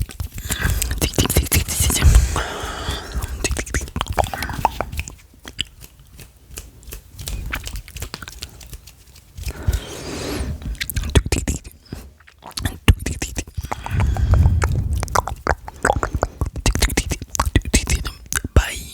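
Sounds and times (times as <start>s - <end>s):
lip and tongue clicks: 0.0s - 18.7s
breathy rush: 13.6s - 16.6s
low rumble: 13.7s - 16.3s.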